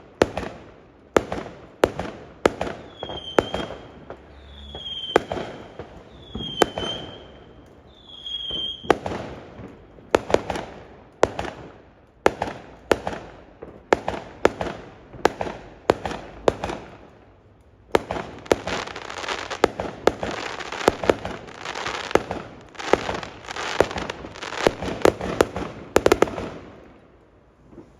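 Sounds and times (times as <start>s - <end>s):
fireworks bangs and crackle: 0.0s - 27.9s
whistling fireworks: 1.2s - 10.7s, 18.0s - 27.0s.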